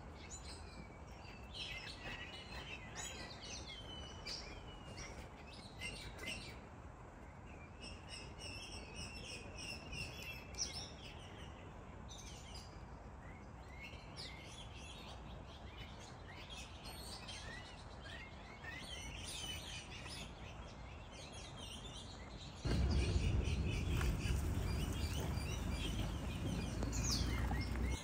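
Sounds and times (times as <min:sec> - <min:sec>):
small birds chirping: 0:00.0 - 0:28.0
low rumbling noise: 0:22.7 - 0:28.0.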